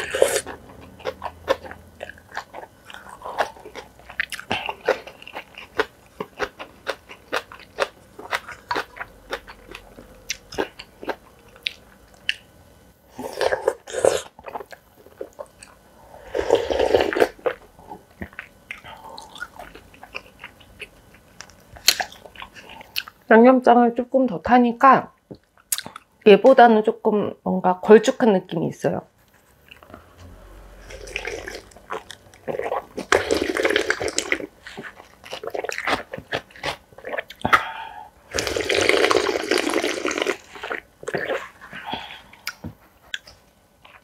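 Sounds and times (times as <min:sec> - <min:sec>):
chewing and crunching: 0:00.0 - 0:12.5, 0:13.2 - 0:15.8, 0:16.4 - 0:23.2, 0:30.9 - 0:37.7.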